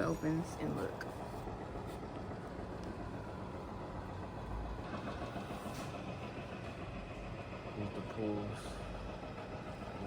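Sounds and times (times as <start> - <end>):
outdoor background rumble: 0.0 - 10.0.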